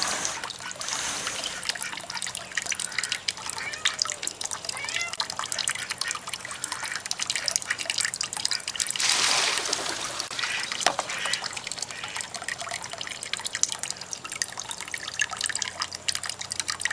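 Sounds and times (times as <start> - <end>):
water splashing rush: 0.0 - 2.4, 8.8 - 12.0
water dripping and trickling: 0.0 - 16.9.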